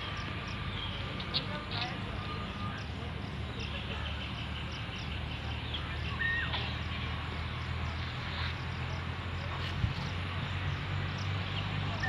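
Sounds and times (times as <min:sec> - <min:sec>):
faint high bird chirps: 0:03.5 - 0:06.9.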